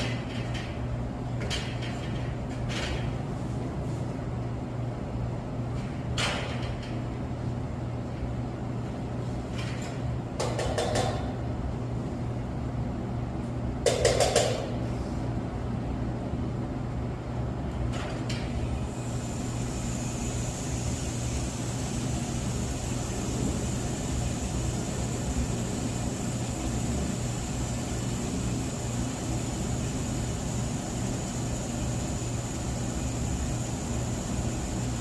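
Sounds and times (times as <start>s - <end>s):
low mechanical hum: 0.0s - 35.0s
tools clicking and knocking on metal: 13.8s - 14.6s.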